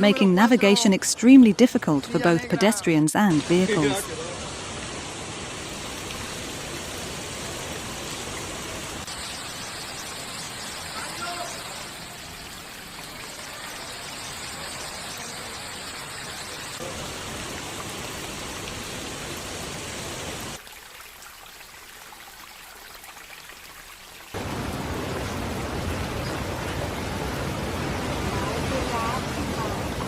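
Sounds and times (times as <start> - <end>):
floodwater running: 0.0 - 30.0
heavy rain: 3.3 - 20.6, 24.3 - 30.0.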